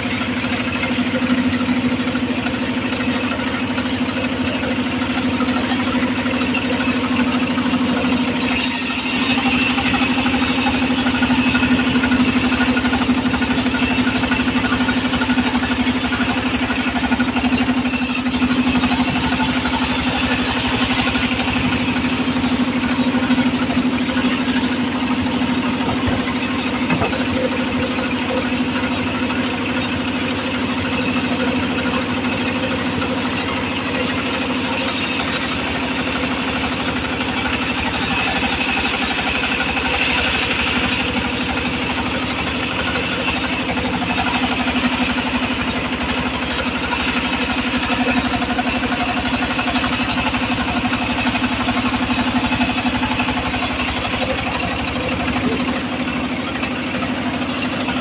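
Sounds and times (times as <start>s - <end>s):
circular saw machine droning: 0.0s - 58.0s.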